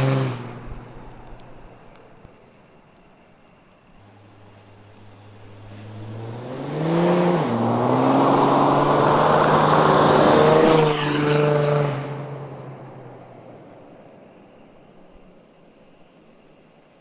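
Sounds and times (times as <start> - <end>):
diesel car accelerating past: 0.0 - 1.1, 4.1 - 13.8.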